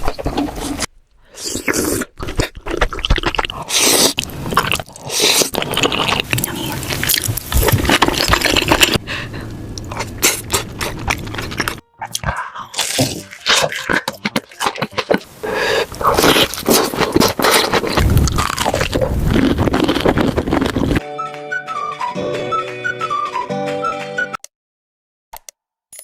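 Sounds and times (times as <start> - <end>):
wet smacking: 0.0 - 9.0, 9.8 - 21.0
person chewing and crunching food: 0.0 - 21.0.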